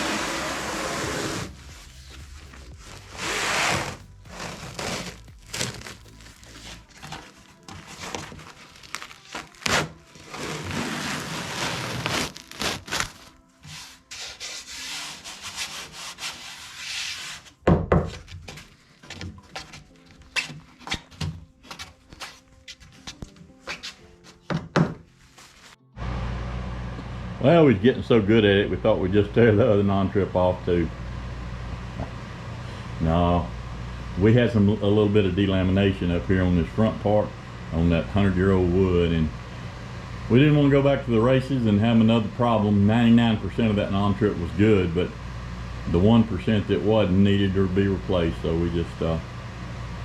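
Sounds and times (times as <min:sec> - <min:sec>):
rough rubbing on wood: 0:00.0 - 0:17.6.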